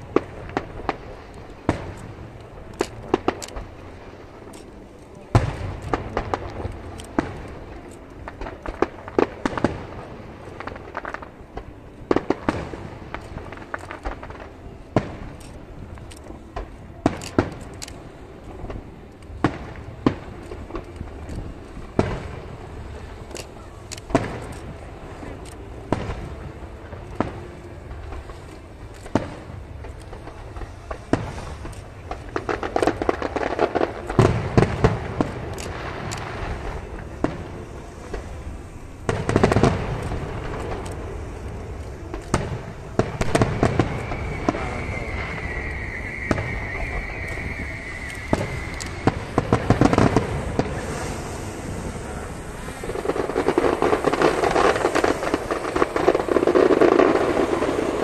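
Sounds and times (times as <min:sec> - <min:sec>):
fireworks booms and cracks: 0:00.0 - 0:58.0
fireworks crackling: 0:00.0 - 0:58.0
high steady whistle: 0:40.6 - 0:58.0.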